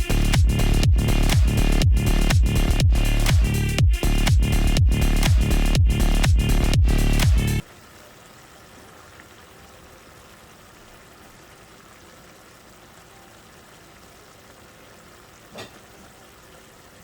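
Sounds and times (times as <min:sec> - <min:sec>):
chicken sizzling in a frying pan: 0:07.6 - 0:17.0.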